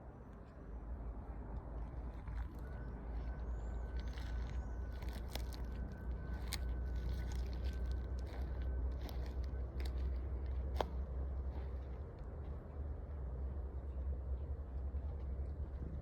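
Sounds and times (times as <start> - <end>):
thin steady whine: 0.0 - 15.7
wind rumbling on microphone: 14.4 - 16.0.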